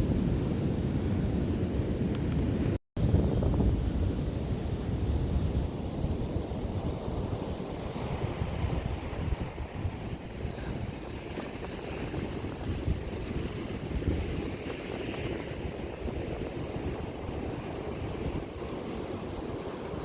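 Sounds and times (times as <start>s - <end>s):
wind buffeting microphone: 0.0s - 20.0s
surf breaking on beach: 6.0s - 20.0s.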